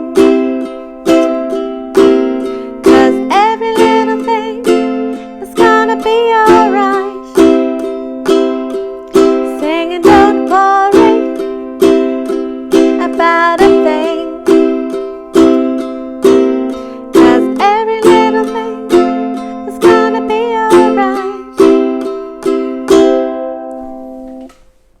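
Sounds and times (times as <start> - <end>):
person singing: 0.0 - 23.0
ukulele strumming reggae pattern: 0.0 - 24.9.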